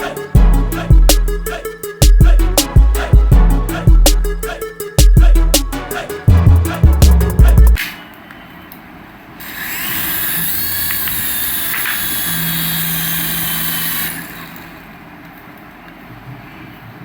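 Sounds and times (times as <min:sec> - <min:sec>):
small electric motor whirring: 0:09.4 - 0:14.8.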